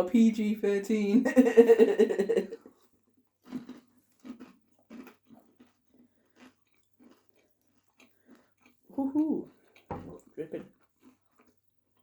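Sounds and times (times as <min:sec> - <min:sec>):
person chewing crunchy food: 0:02.5 - 0:12.0.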